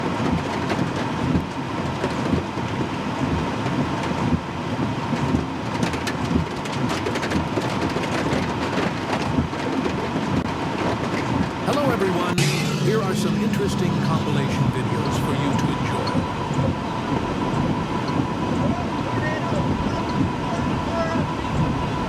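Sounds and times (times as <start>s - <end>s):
rain: 0.0s - 11.7s
sharp cracks and clatters: 5.2s - 11.3s
low rumble: 11.7s - 18.8s.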